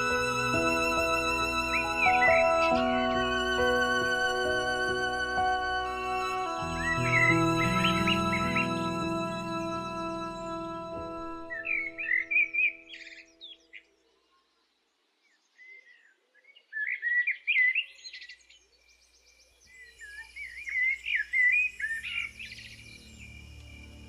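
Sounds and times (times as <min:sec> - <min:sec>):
songbirds chirping and warbling: 0:00.0 - 0:24.0.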